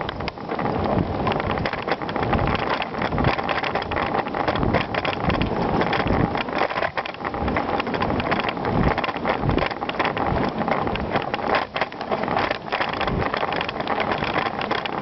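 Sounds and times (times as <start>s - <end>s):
bike rattling: 0.0s - 15.0s
wind buffeting microphone: 0.0s - 15.0s.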